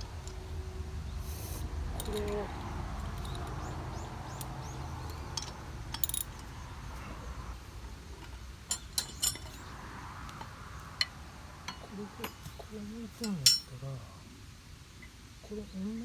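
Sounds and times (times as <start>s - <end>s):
metal parts clinking: 2.0s - 6.7s, 8.2s - 9.7s, 13.2s - 13.7s.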